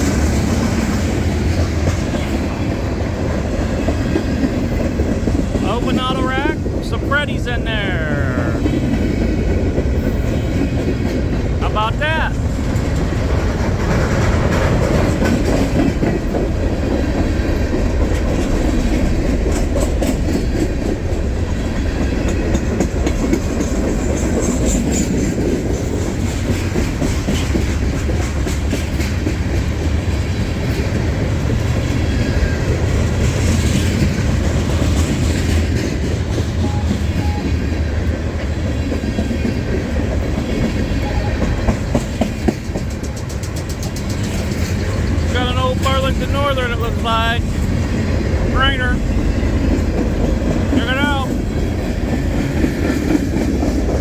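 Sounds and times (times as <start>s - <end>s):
freight train wheels rumbling: 0.0s - 54.0s
wheels clacking over rail joints: 12.4s - 37.1s, 38.0s - 46.8s.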